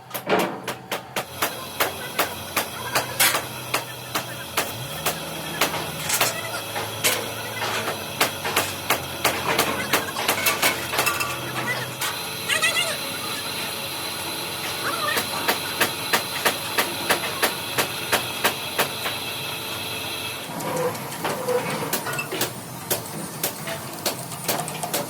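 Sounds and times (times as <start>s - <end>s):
hammer striking steel: 0.2s - 11.7s.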